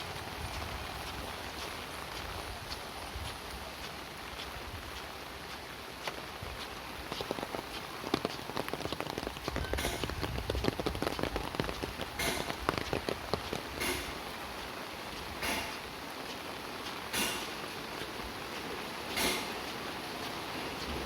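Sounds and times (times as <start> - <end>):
rain pattering on a surface: 0.0 - 21.0.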